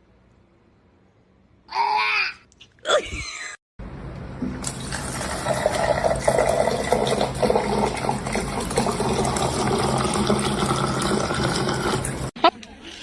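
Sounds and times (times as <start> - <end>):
water running: 4.2 - 12.4.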